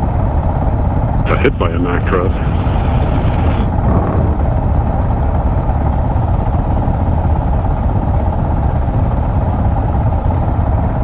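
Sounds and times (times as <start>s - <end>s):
motorcycle engine rumble: 2.8s - 5.9s.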